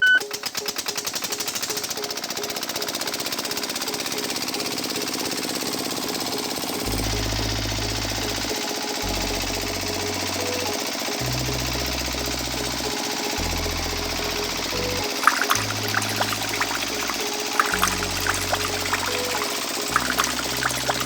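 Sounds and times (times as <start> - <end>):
background music: 6.8 - 21.0.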